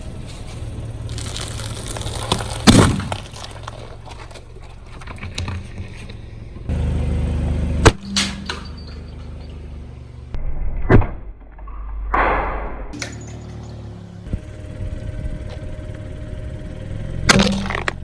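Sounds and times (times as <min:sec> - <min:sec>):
tyre crushing objects: 0:00.0 - 0:06.2, 0:17.3 - 0:18.0
car engine running low: 0:00.0 - 0:10.4, 0:13.0 - 0:18.0.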